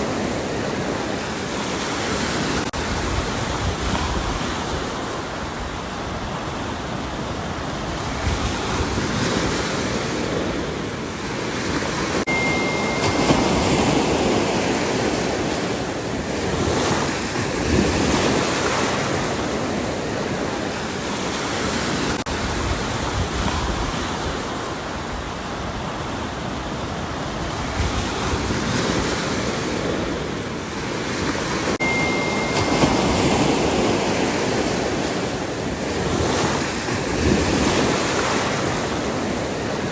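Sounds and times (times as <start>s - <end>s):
waves breaking: 0.0s - 39.9s
wind over microphone: 0.0s - 39.9s.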